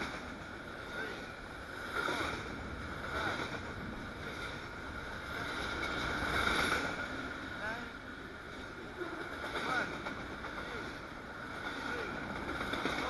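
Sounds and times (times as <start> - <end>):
freight train wheels on rails: 0.0 - 13.0.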